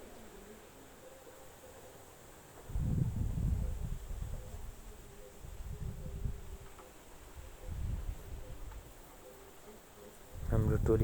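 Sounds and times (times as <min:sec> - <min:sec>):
faint distant voices: 0:00.0 - 0:11.0
wind gusting against microphone: 0:02.6 - 0:09.0, 0:10.3 - 0:11.0.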